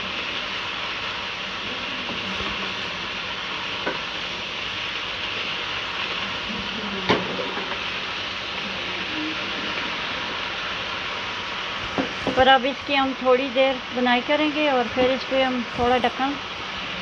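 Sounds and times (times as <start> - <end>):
food sizzling in a wok: 0.0 - 17.0.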